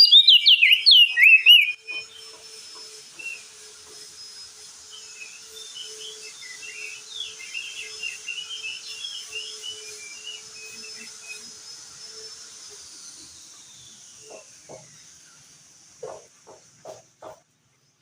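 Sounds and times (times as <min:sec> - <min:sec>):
bird chattering chirps: 0:00.0 - 0:02.3
soft knocks: 0:16.0 - 0:17.4.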